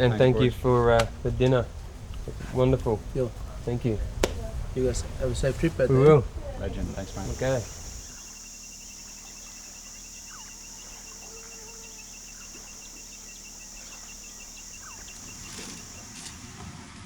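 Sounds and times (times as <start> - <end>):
insects buzzing: 0.0 - 16.7
rapid regular ticking: 6.9 - 16.5.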